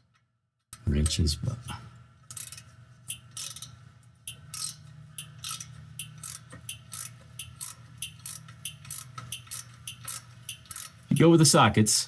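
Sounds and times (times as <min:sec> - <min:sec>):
steady low hum: 0:00.8 - 0:12.0
socket ratchet clicking: 0:02.3 - 0:11.6.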